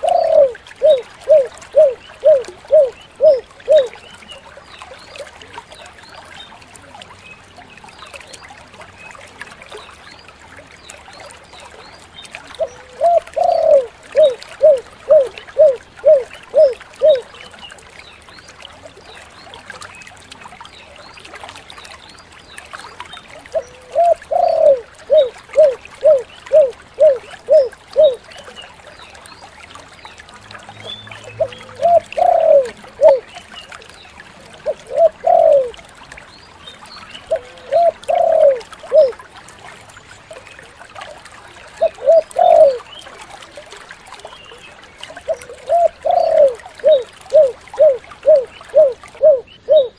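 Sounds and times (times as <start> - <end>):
dove cooing: 0.0 - 3.9, 12.6 - 17.3, 23.5 - 28.2, 31.4 - 33.3, 34.6 - 35.8, 37.3 - 39.2, 41.8 - 42.8, 45.3 - 49.9.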